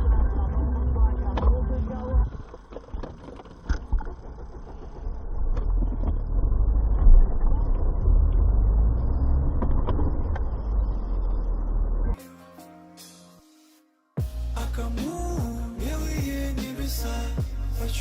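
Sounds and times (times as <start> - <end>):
car engine and road noise: 0.0 - 12.2.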